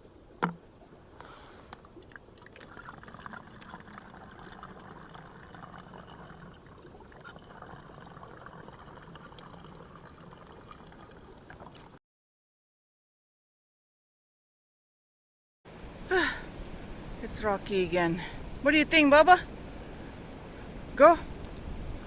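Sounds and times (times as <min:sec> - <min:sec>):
creek trickling: 0:00.0 - 0:12.0.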